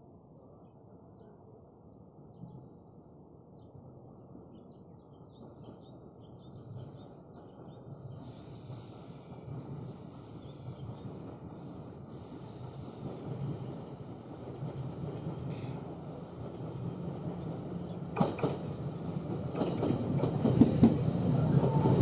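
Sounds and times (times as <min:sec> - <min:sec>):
train rumble approaching: 0:07.0 - 0:22.0
high hiss: 0:08.2 - 0:10.9.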